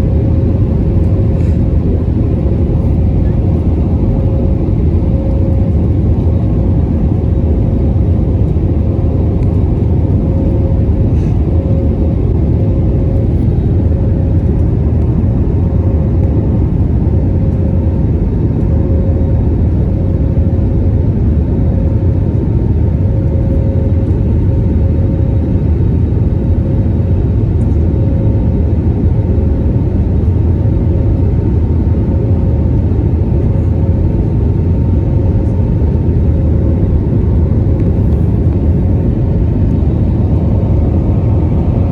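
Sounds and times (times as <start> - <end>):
faint steady whine: 0.0 - 28.8
airplane cabin engine rumble: 0.0 - 41.9.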